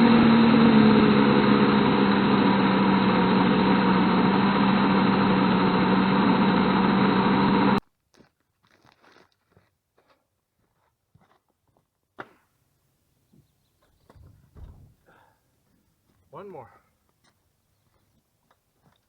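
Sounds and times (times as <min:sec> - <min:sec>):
electric chainsaw cutting logs: 0:00.0 - 0:07.8.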